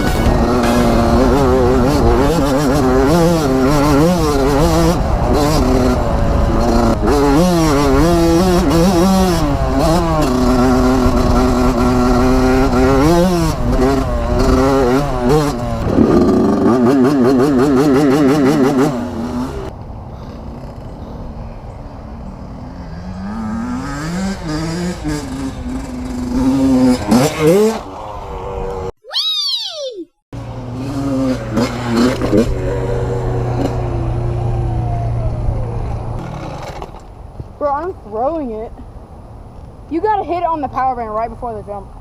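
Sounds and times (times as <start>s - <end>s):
dirt bike engine revving: 0.0s - 19.7s, 22.4s - 28.9s, 30.4s - 34.6s.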